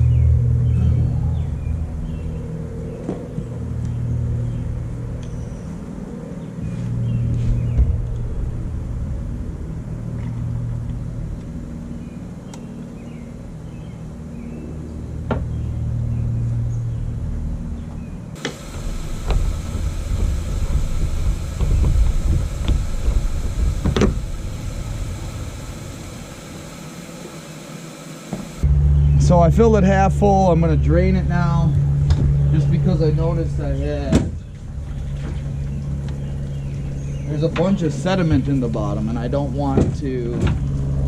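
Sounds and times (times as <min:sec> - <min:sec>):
water filling with low rumble: 0:18.4 - 0:27.7.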